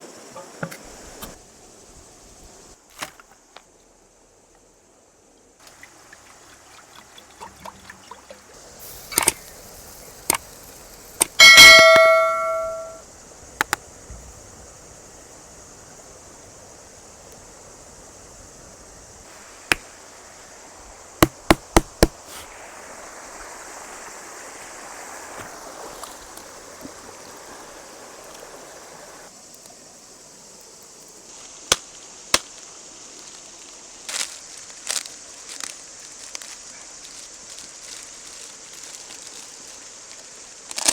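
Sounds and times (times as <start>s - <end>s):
steady high hiss: 0.0s - 40.9s
metal pot clanging and ringing: 11.4s - 13.0s.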